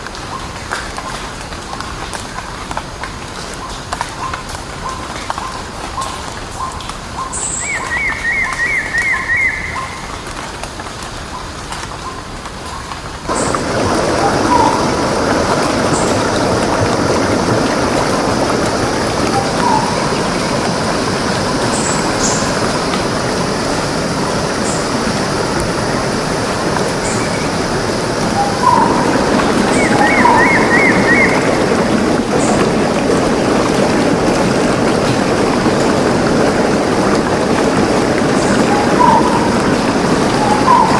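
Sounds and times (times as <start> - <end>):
stream water rushing: 0.0 - 40.9
birds chirping: 7.2 - 10.1, 13.3 - 32.7, 40.3 - 40.9.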